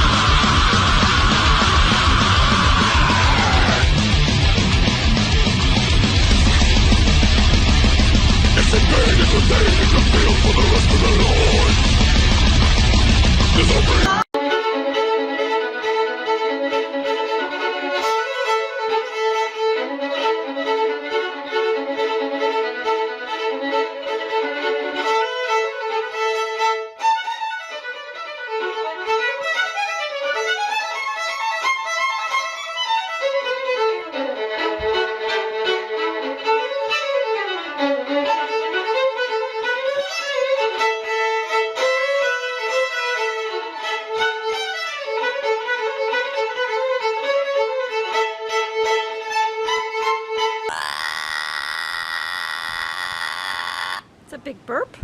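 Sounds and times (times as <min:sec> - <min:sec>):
solo violin melody: 0:14.4 - 0:50.6.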